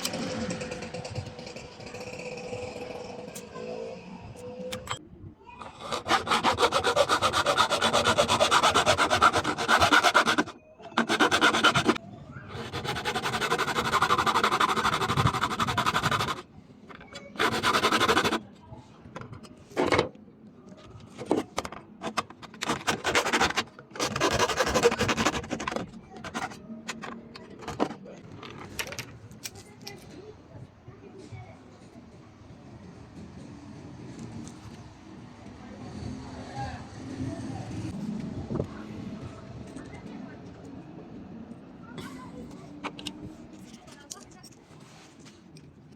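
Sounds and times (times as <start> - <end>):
abrasive rubbing on a workpiece: 5.6 - 16.5, 17.2 - 18.5.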